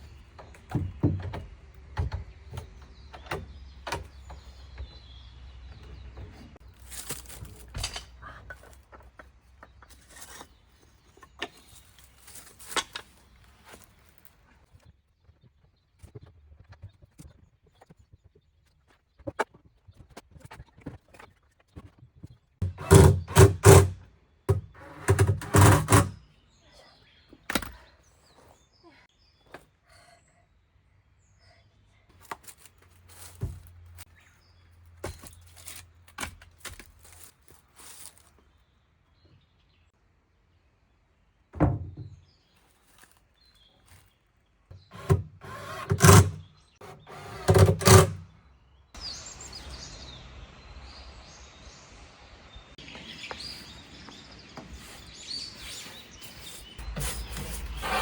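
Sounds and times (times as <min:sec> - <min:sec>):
small birds chirping: 0:00.0 - 0:07.5, 0:26.2 - 0:32.3, 0:37.1 - 0:58.0
wooden knocks and thunks: 0:00.3 - 0:05.1, 0:41.5 - 0:42.2
steady outdoor hiss: 0:49.0 - 0:58.0.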